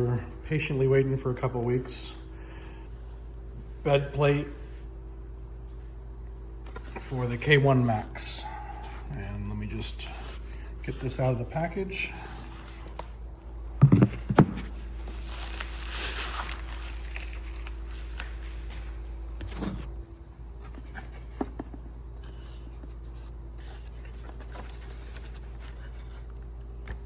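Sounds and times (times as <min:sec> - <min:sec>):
steady low hum: 0:00.0 - 0:27.0
package rustling: 0:14.2 - 0:19.8.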